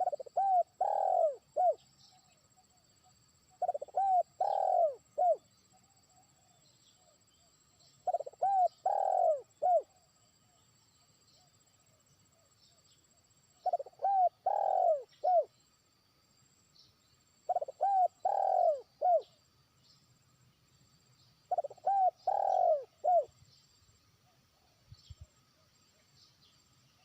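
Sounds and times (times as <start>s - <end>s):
dove cooing: 0.0s - 1.8s, 3.6s - 5.4s, 8.0s - 10.0s, 13.6s - 15.5s, 17.5s - 19.3s, 21.5s - 23.3s.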